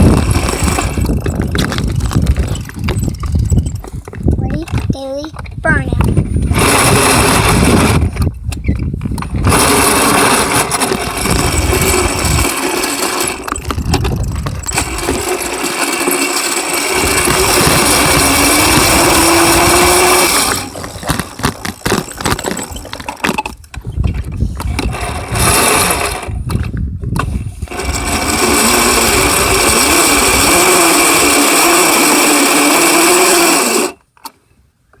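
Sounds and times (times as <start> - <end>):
wind rush on microphone: 0.0 - 15.4, 16.8 - 21.8, 23.5 - 31.3
dirt bike motor whining: 0.0 - 34.3.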